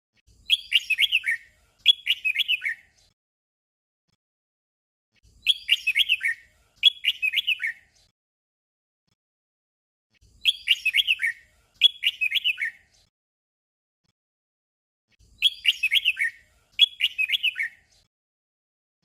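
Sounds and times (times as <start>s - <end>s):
bird singing whistled notes: 0.3s - 3.0s, 5.4s - 8.0s, 10.3s - 12.9s, 15.3s - 18.0s.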